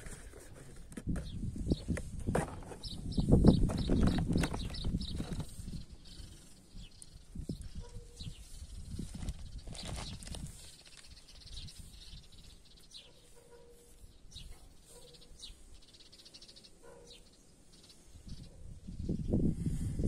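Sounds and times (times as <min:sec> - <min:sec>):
birds chirping: 0:01.2 - 0:19.4.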